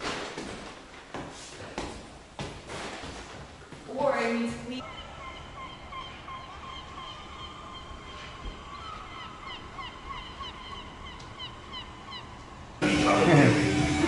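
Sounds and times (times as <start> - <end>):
flock of birds calling: 4.8 - 12.8.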